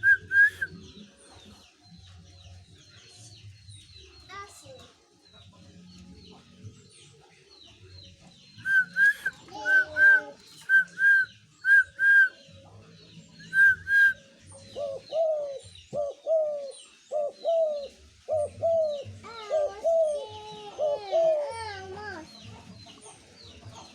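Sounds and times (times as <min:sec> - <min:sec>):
dove cooing: 0:13.6 - 0:22.2.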